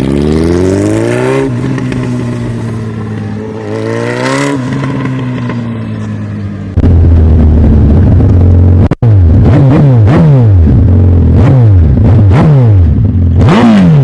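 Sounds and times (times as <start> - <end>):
motorcycle engine revving: 0.0 - 14.0
loud low rumble: 0.4 - 9.7.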